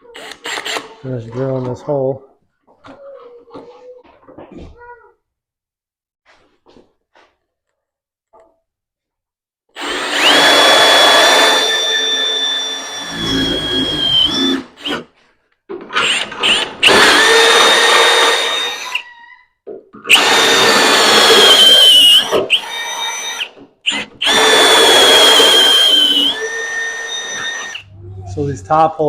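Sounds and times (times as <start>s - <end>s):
electric drill boring through metal: 9.8s - 15.0s, 16.0s - 19.1s, 20.1s - 28.0s.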